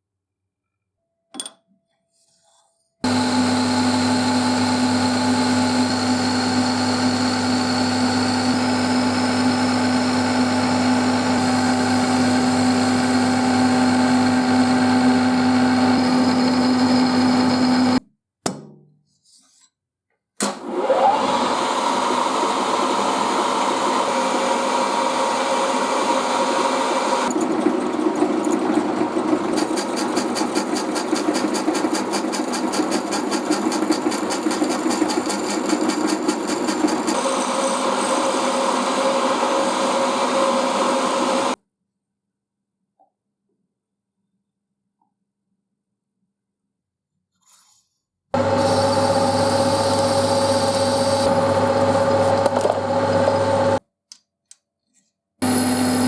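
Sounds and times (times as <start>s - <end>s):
machine spinning up whine: 3.1s - 18.0s, 21.1s - 41.6s, 48.4s - 53.8s, 55.4s - 56.0s
machine tool motor humming: 27.3s - 41.6s, 48.4s - 53.8s, 55.4s - 56.0s.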